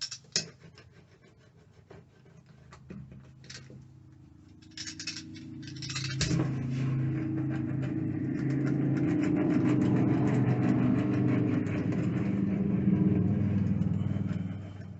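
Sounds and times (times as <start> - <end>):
light clicks and scraping: 1.8 - 12.4
pickup truck engine running: 5.8 - 14.9.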